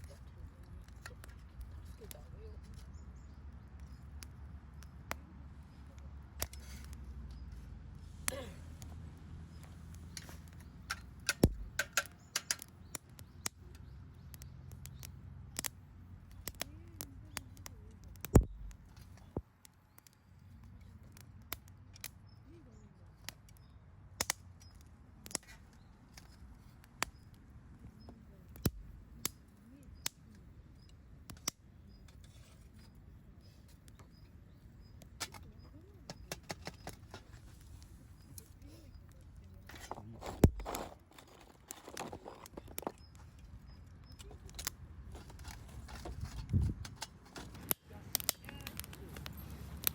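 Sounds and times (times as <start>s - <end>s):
campfire crackling and popping: 0.0s - 49.9s.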